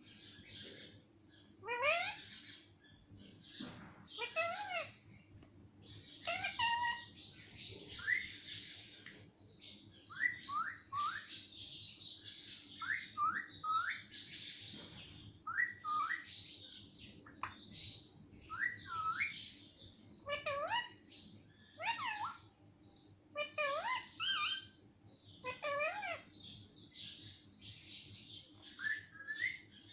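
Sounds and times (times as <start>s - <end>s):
parrot raspy chatter: 1.6s - 2.2s, 4.2s - 5.0s, 6.2s - 7.1s, 20.3s - 21.0s, 21.8s - 22.4s, 23.4s - 24.7s, 25.4s - 26.3s.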